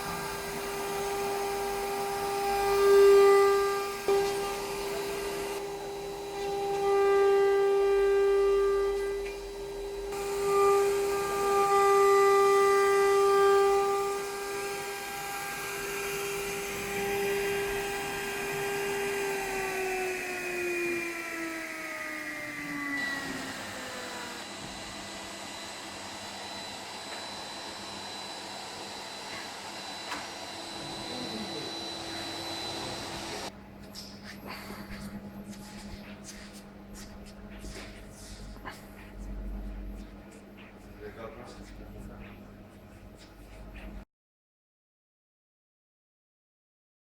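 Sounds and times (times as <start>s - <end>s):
machine spindle whining: 0.0s - 33.5s
low machine hum: 23.4s - 44.0s.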